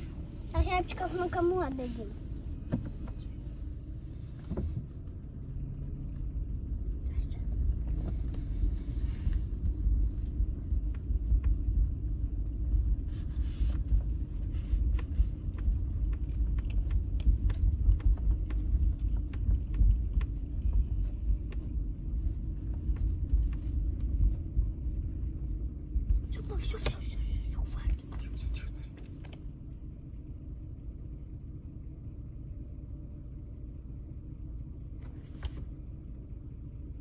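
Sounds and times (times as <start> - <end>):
low rumble: 0.0 - 37.0
faint clicks and rattles: 9.2 - 29.5.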